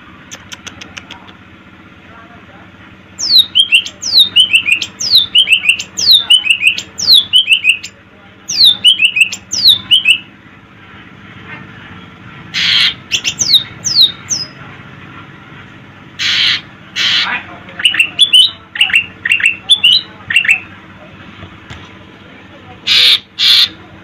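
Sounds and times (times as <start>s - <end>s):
harsh rasping bird calls: 3.2s - 10.3s, 12.5s - 14.6s, 16.2s - 20.7s, 22.8s - 23.8s.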